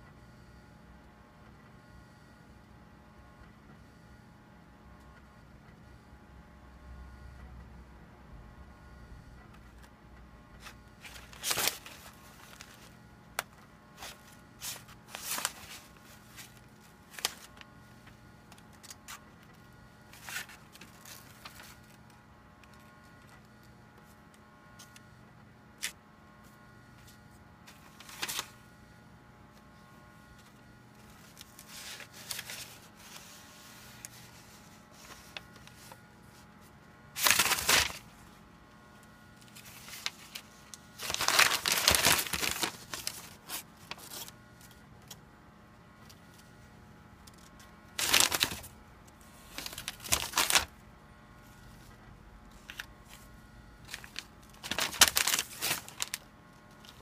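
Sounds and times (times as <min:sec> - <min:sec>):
faint steady hum: 0:00.0 - 0:57.0
paper rustling and crinkling: 0:10.6 - 0:19.2, 0:20.1 - 0:22.8, 0:27.0 - 0:28.6, 0:30.4 - 0:36.4, 0:37.2 - 0:38.2, 0:39.4 - 0:44.7, 0:47.4 - 0:50.8, 0:52.5 - 0:57.0.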